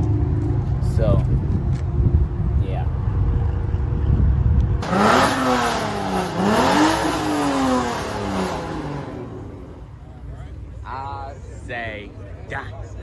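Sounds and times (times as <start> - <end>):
car engine revving: 4.8 - 10.3.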